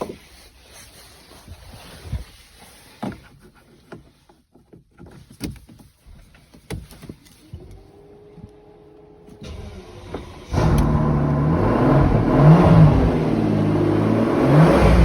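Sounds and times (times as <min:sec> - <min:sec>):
handling clicks and knocks: 0:02.9 - 0:07.8.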